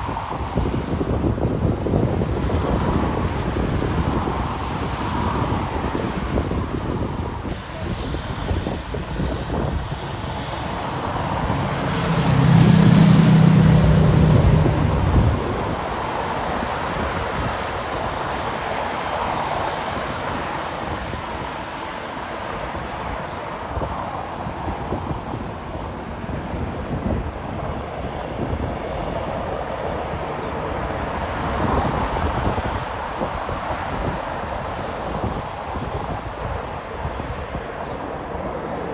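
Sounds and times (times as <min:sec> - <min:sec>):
airplane engine noise: 0:00.0 - 0:38.9
wind buffeting microphone: 0:00.0 - 0:38.9
vehicle passing by: 0:09.9 - 0:17.3.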